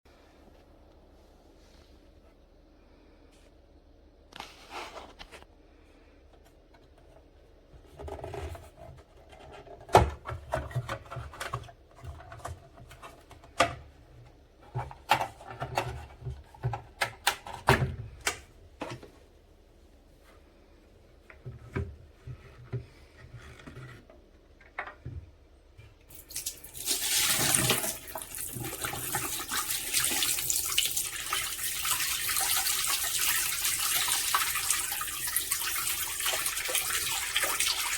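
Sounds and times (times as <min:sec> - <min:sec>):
water running: 0:26.1 - 0:37.9.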